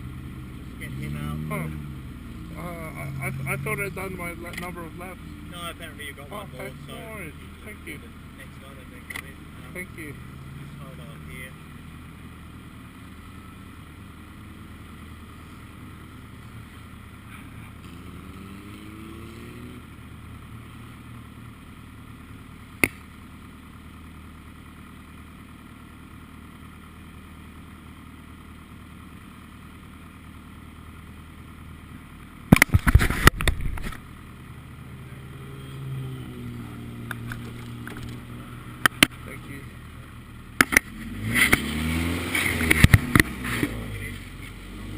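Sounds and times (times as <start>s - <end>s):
race car engine idling: 0.0s - 18.0s, 19.8s - 41.2s
engine rising in pitch: 34.8s - 39.8s, 40.7s - 44.9s.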